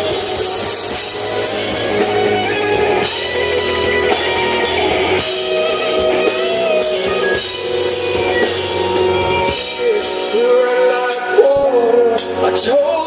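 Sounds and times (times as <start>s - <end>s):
rock band playing: 0.0s - 13.0s
person singing: 4.1s - 13.0s.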